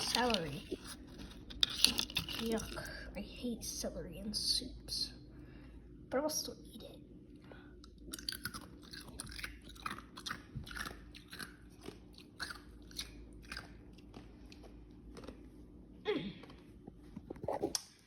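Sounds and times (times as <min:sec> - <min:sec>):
wet crunchy chewing: 0:07.8 - 0:15.8.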